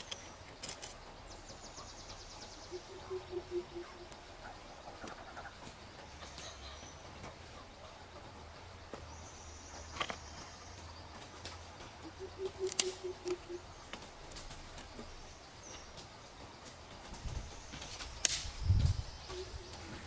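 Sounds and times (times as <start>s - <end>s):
low bird notes: 12.0s - 13.7s.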